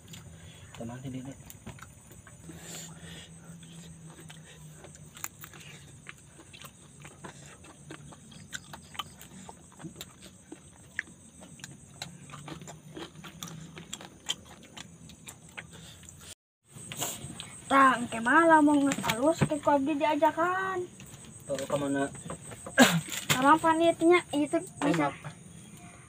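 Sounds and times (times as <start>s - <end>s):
person chewing: 0.0s - 0.8s, 1.5s - 16.4s.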